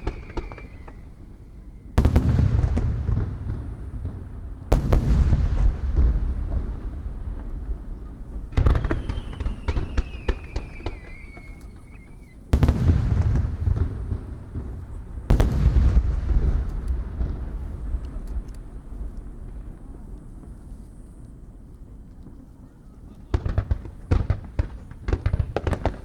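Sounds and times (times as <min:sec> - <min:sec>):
falling whistle: 0:00.0 - 0:01.2, 0:08.7 - 0:12.4
fireworks booming: 0:00.0 - 0:21.1, 0:23.2 - 0:26.0
crackling pops: 0:04.7 - 0:22.4.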